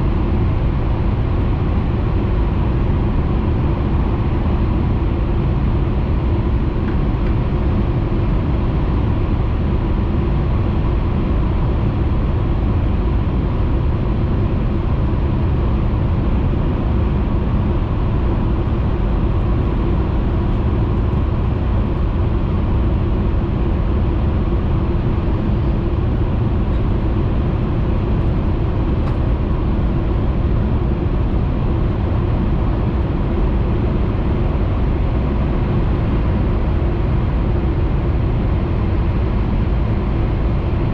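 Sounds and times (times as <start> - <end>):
train cabin running rumble: 16.1 - 40.7.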